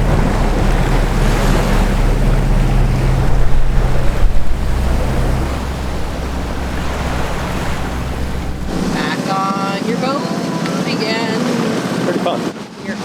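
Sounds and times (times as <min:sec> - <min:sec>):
wind on microphone: 0:00.0 - 0:09.2
boat engine running: 0:00.0 - 0:10.2
water washing past hull: 0:00.0 - 0:13.0.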